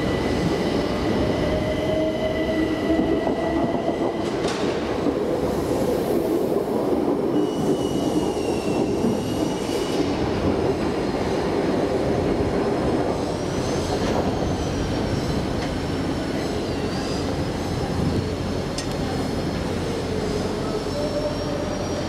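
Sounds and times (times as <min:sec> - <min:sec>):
train rumbling over rails: 0:00.0 - 0:22.0
train wheels squealing: 0:07.2 - 0:10.3, 0:13.1 - 0:18.0, 0:20.1 - 0:22.0.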